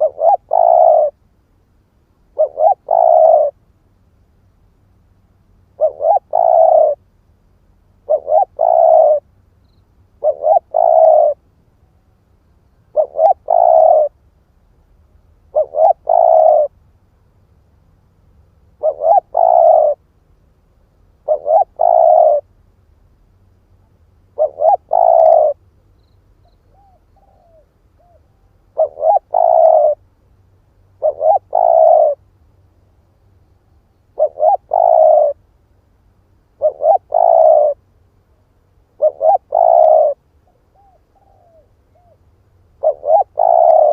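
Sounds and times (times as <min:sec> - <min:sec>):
dove cooing: 0:00.0 - 0:01.2, 0:02.3 - 0:03.6, 0:05.7 - 0:07.0, 0:08.0 - 0:09.3, 0:10.2 - 0:11.4, 0:12.9 - 0:14.2, 0:15.5 - 0:16.8, 0:18.8 - 0:20.0, 0:21.2 - 0:22.5, 0:24.3 - 0:25.6, 0:26.4 - 0:30.0, 0:31.0 - 0:32.2, 0:34.1 - 0:35.4, 0:36.6 - 0:37.8, 0:39.0 - 0:42.2, 0:42.8 - 0:43.9.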